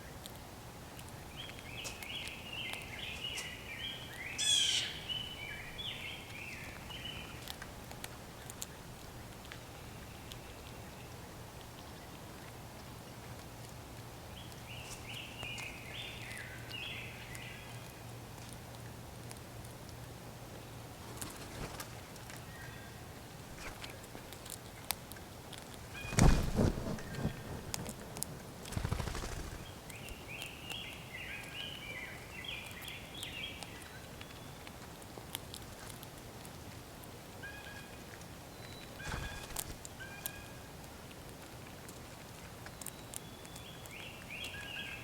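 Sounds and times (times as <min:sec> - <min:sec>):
bird calling: 0:04.3 - 0:07.4, 0:38.9 - 0:40.6
brief rustle: 0:26.0 - 0:29.5.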